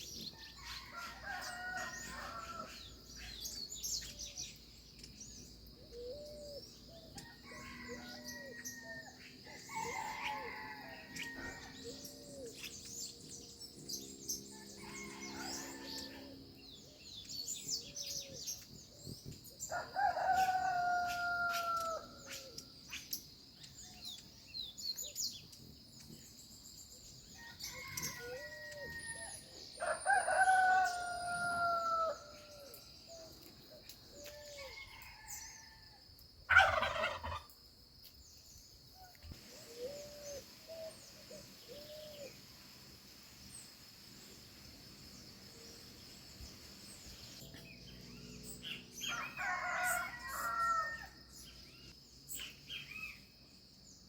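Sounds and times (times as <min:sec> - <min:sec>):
rooster crowing: 0:00.6 - 0:02.8, 0:07.2 - 0:12.1, 0:14.5 - 0:16.4, 0:19.7 - 0:22.2, 0:27.4 - 0:32.6, 0:36.5 - 0:37.4, 0:49.0 - 0:51.2.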